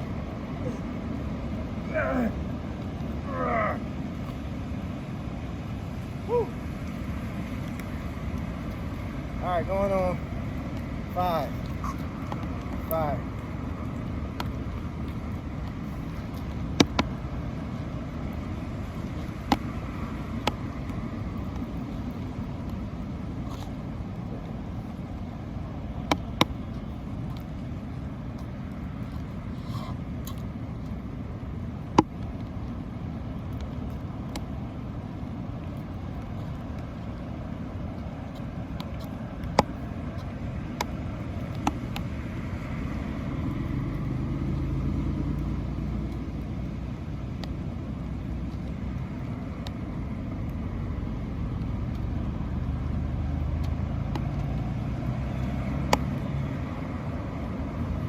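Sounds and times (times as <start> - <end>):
road traffic rumble: 0.0 - 58.0
vehicle passing: 34.6 - 58.0.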